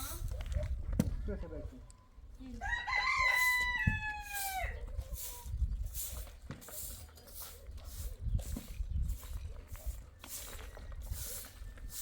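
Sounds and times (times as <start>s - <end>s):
rooster crowing: 2.6s - 4.8s
regular hissing scrape: 4.3s - 12.0s.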